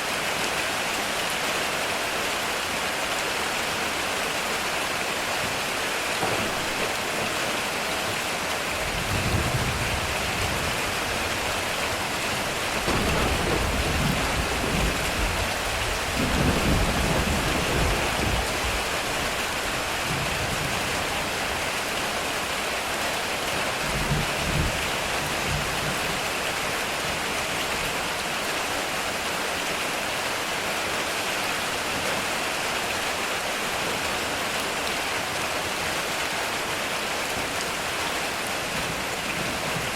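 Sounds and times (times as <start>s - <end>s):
heavy rain on metal roof: 0.0s - 39.9s
thunder rumbling: 5.5s - 21.2s.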